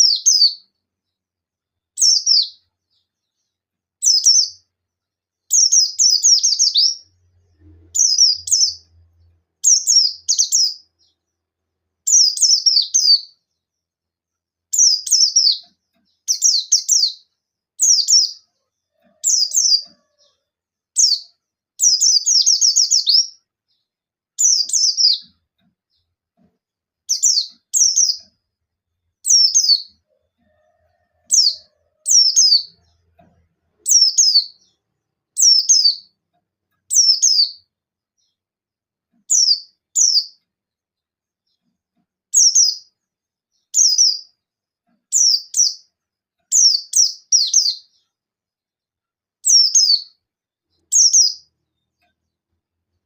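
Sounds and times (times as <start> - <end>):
bird sharp chirps: 5.5 - 11.2, 12.0 - 13.5, 14.7 - 20.4, 21.0 - 26.1, 27.1 - 28.4, 35.4 - 36.2, 36.9 - 38.4, 45.1 - 45.9, 49.4 - 52.1.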